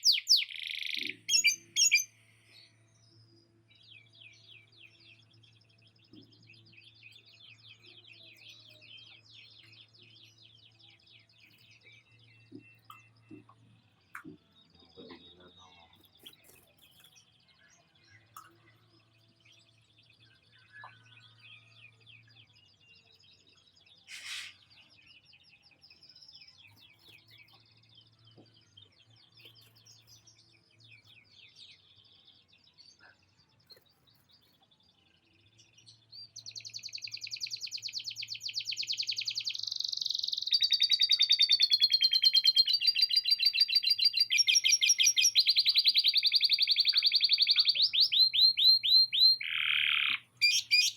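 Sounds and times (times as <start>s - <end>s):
canary singing trills: 0.0s - 2.5s, 35.6s - 50.9s.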